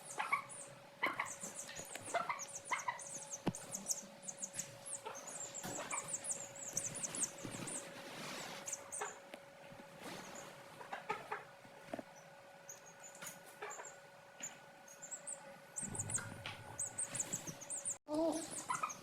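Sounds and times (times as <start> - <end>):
hen clucking: 0.0 - 7.9, 8.6 - 9.3, 10.3 - 11.6, 13.5 - 14.0, 15.1 - 19.0
chicks cheeping: 0.0 - 9.3, 12.1 - 19.0.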